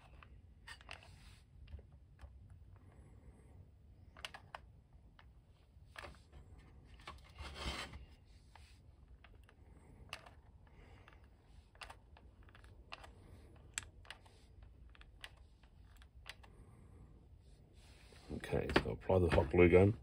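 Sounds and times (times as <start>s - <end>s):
plastic toy parts clicking: 0.0s - 2.4s, 4.1s - 5.3s, 8.6s - 16.5s
rubbing scrape: 7.3s - 8.1s.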